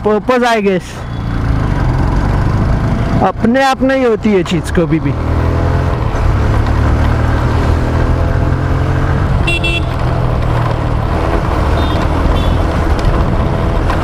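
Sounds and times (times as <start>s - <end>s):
motorcycle engine and road rumble: 0.0s - 14.0s
vehicle horn toots: 9.4s - 10.0s, 11.8s - 12.6s.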